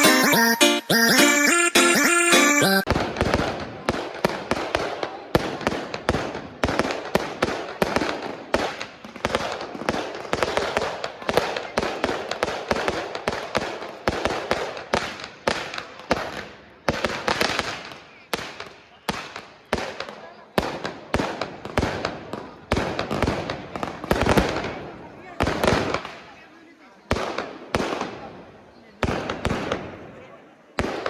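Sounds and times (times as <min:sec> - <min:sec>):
fireworks bangs: 0:02.8 - 0:26.3, 0:27.1 - 0:28.4, 0:29.0 - 0:30.2, 0:30.8 - 0:31.0
fireworks crackling: 0:02.8 - 0:26.4.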